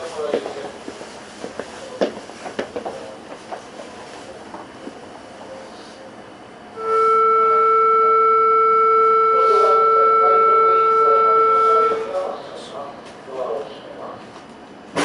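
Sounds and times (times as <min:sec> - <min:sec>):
two-pitch electronic tone: 0:06.8 - 0:12.1.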